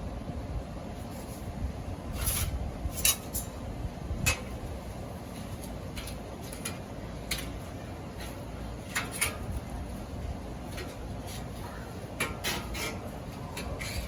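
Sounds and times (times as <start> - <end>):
metal utensils clinking and scraping: 10.7 - 14.0.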